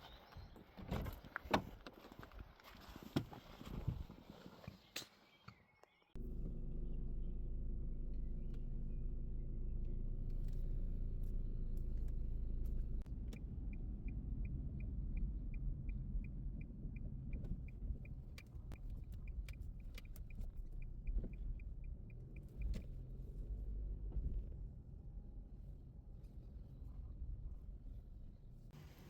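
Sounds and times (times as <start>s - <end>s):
low steady rumble: 6.2s - 29.0s
regular ticking: 13.0s - 23.2s
scattered clicks: 13.1s - 23.0s.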